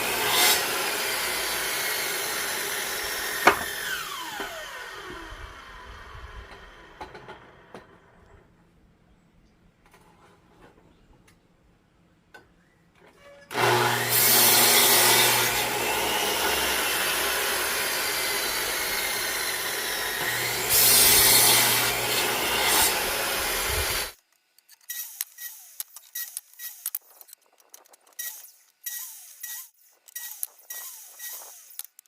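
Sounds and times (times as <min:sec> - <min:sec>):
power saw cutting wood: 0:00.0 - 0:08.0, 0:13.5 - 0:24.2, 0:28.2 - 0:31.9.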